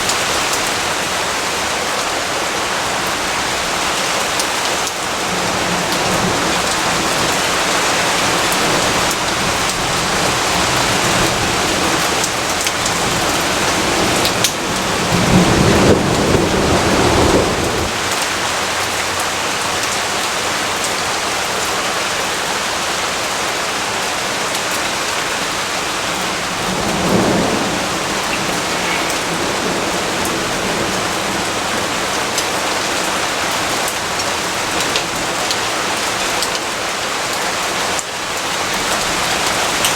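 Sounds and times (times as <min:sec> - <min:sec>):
heavy rainfall: 0:00.0 - 0:39.9
thunder rumbling: 0:05.1 - 0:18.7, 0:25.6 - 0:32.9.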